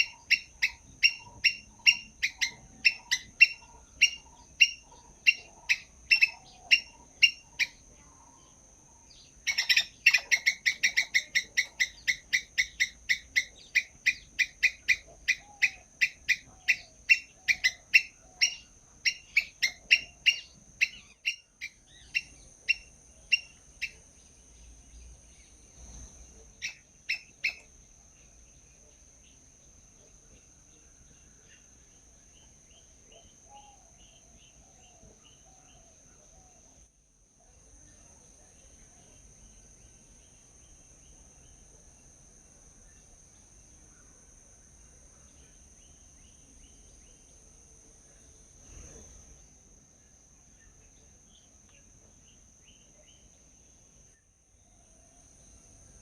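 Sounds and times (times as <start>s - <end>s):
small birds chirping: 0.0s - 36.8s, 44.8s - 56.0s.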